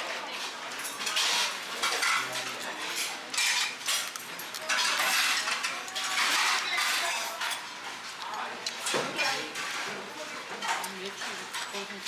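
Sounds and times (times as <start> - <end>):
cutlery and dishes clinking: 0.4 - 12.0.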